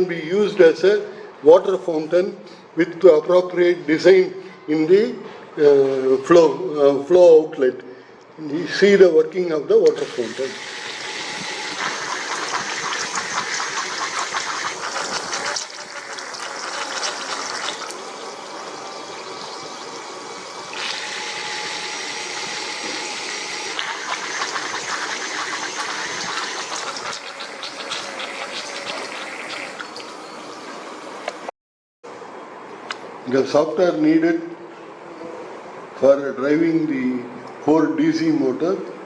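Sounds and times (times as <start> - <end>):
fountain water splashing: 11.7 - 19.8, 23.8 - 30.1.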